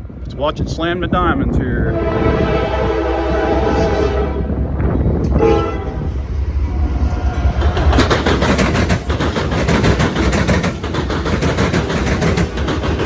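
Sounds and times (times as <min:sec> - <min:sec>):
low rumble of passing train: 0:00.0 - 0:13.0
train horn: 0:01.8 - 0:04.6, 0:05.3 - 0:06.3
train wheels banging over rails: 0:07.1 - 0:13.0.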